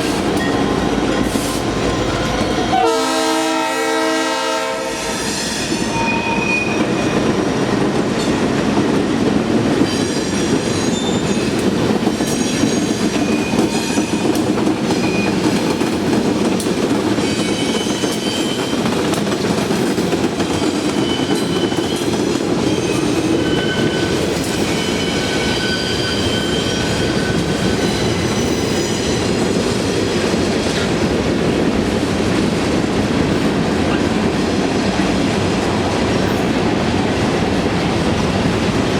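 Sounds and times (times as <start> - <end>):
freight train wheels rumbling: 0.0 - 38.9
high-pitched wheel squeals: 5.1 - 7.2, 22.7 - 29.3.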